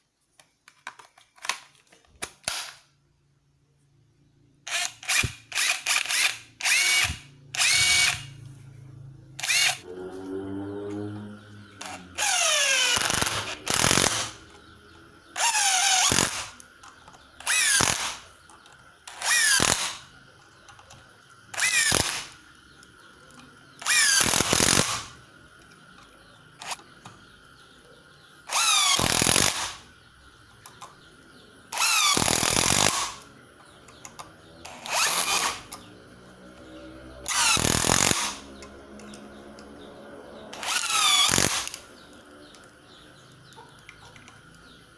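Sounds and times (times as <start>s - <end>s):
impact driver motor whine: 4.7s - 8.4s, 9.4s - 14.6s, 15.4s - 16.6s, 17.4s - 18.2s, 19.1s - 20.0s, 21.5s - 22.4s, 23.8s - 25.2s, 26.6s - 26.8s, 28.5s - 29.8s, 31.7s - 33.2s, 34.6s - 35.8s, 37.2s - 38.5s, 40.5s - 41.8s.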